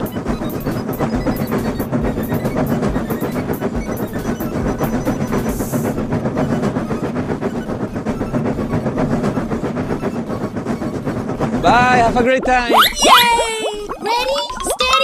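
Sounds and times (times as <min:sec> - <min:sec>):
train wheels clattering: 0:00.0 - 0:13.3.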